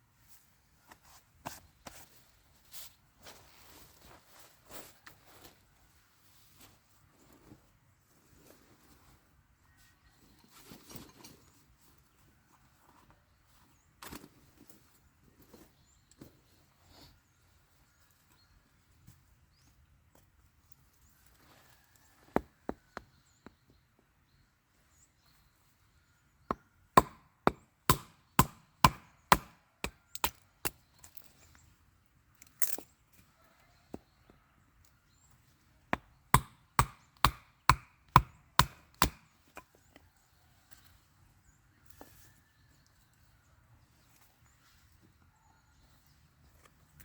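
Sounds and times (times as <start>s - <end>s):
axe chopping firewood: 26.5s - 30.8s, 36.0s - 39.3s.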